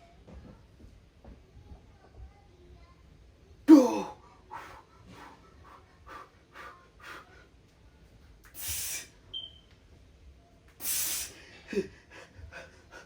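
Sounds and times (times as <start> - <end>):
man breathing hard: 10.8 - 13.0.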